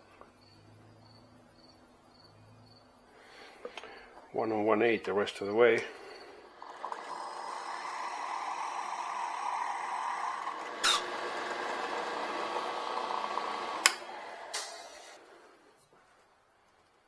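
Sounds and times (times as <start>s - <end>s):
wood lathe cutting: 6.1s - 15.6s.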